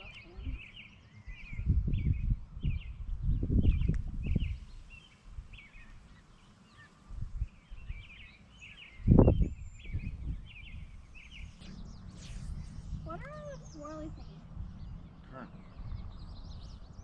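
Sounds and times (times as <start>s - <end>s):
low rumble on the microphone: 0.0s - 6.0s, 9.0s - 17.0s
small birds chirping: 0.0s - 17.0s.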